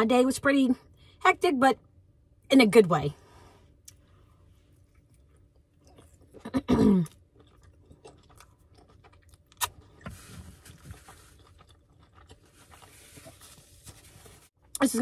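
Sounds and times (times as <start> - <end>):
person chewing food: 3.8 - 14.5.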